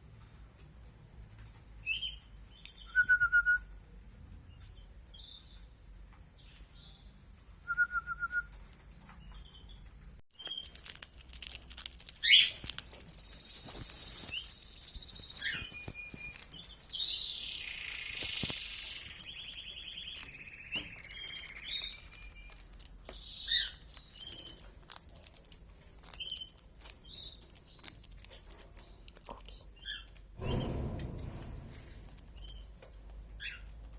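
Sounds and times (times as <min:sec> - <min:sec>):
cage birds chirping: 0:00.0 - 0:33.9
bird trilling song: 0:01.8 - 0:03.6, 0:12.2 - 0:24.6
wings fluttering: 0:10.4 - 0:26.6.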